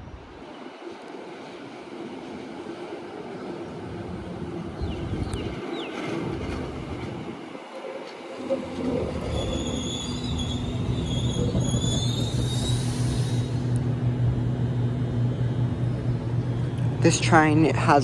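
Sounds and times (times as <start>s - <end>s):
low electrical hum of train: 0.0s - 18.0s
train wheels squealing: 8.4s - 13.8s.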